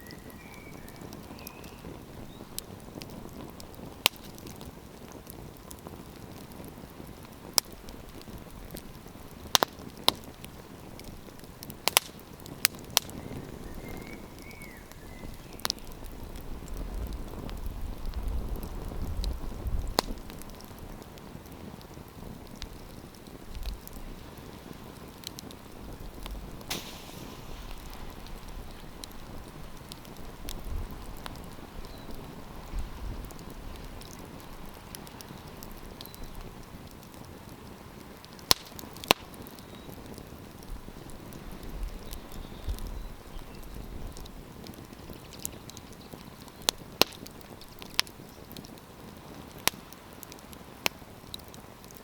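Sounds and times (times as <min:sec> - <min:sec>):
campfire crackling: 0:00.0 - 0:52.0
sharp wood snaps: 0:04.0 - 0:04.6, 0:26.2 - 0:30.6, 0:38.3 - 0:39.7, 0:44.2 - 0:48.8.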